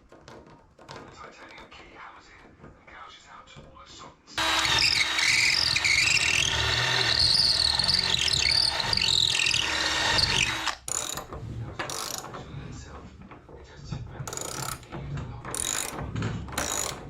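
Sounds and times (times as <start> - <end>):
power drill whining: 4.4 - 11.2.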